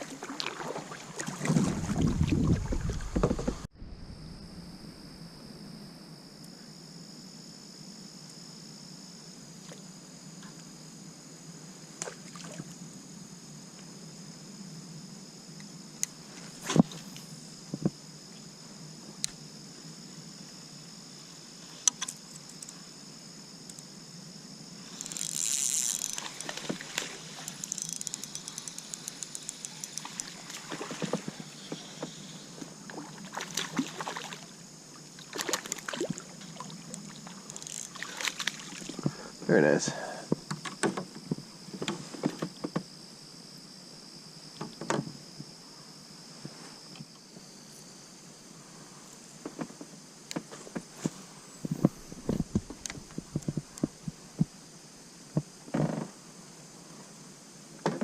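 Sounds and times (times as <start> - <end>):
splash: 0.0 - 3.1, 30.0 - 31.2, 32.9 - 34.6, 35.2 - 39.0
faint high-pitched hum: 0.0 - 58.0
rapid light ticking: 24.9 - 30.5.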